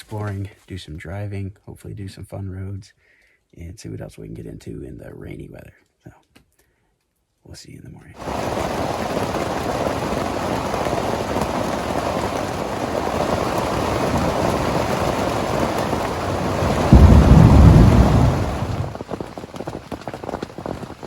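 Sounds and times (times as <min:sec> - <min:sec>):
heavy rain pouring: 0:08.2 - 0:21.0
thunder rumble: 0:08.2 - 0:21.0.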